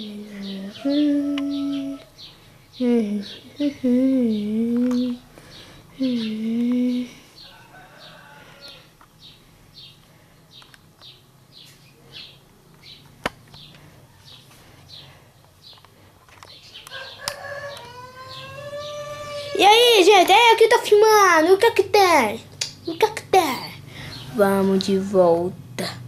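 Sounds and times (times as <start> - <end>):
person humming: 0.0 - 2.1, 2.8 - 5.3, 5.9 - 7.3
bird chirping: 0.0 - 19.8.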